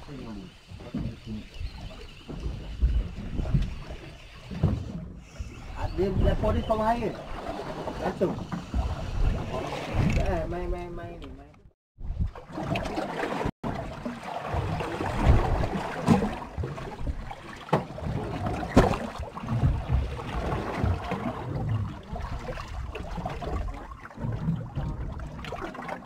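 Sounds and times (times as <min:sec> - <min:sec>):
water sloshing against hull: 0:00.0 - 0:26.0
wind buffeting microphone: 0:00.2 - 0:11.1.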